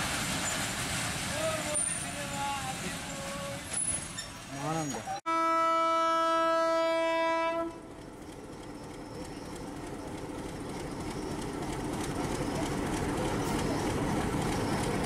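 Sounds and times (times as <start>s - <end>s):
locomotive engine rumble: 0.0s - 15.0s
locomotive horn blast: 5.3s - 7.9s.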